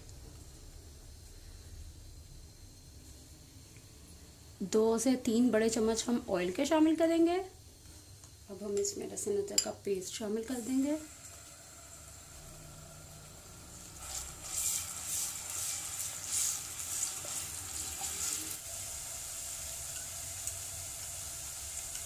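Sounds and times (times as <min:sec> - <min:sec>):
paste sizzling in hot oil: 0:07.6 - 0:22.0.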